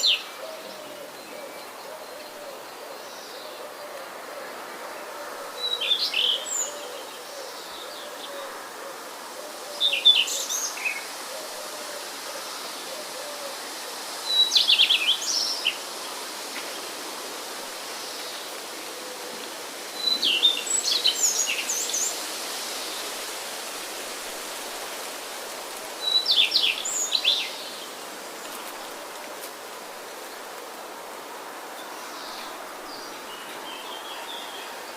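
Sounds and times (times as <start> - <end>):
songbird singing: 0.0 - 11.6, 14.2 - 16.8, 17.9 - 22.2, 25.8 - 30.8, 31.7 - 34.9
background hiss: 0.0 - 34.9.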